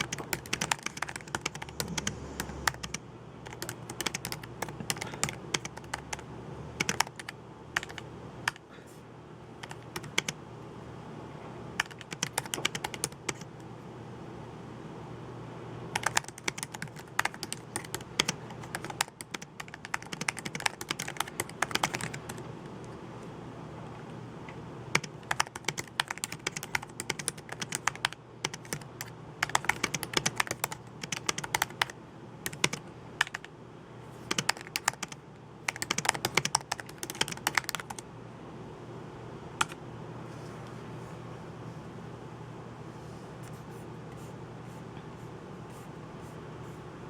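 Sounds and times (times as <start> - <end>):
computer keyboard typing: 0.0 - 8.7, 9.6 - 10.4, 11.8 - 13.5, 15.9 - 23.0, 24.9 - 33.5, 34.2 - 38.1, 39.6 - 39.8.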